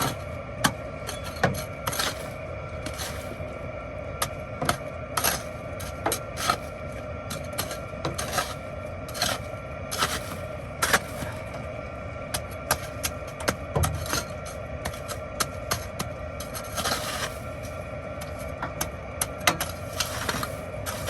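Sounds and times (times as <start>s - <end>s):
ice crunching and clicking: 0.0s - 3.6s, 4.2s - 11.7s, 12.3s - 21.0s
steady low hum: 0.0s - 21.0s.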